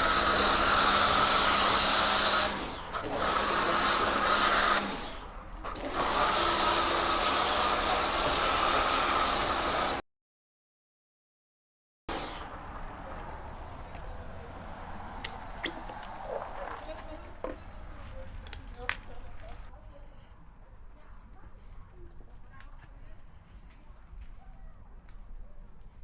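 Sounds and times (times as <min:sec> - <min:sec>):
pressure washer spraying: 0:00.0 - 0:10.0.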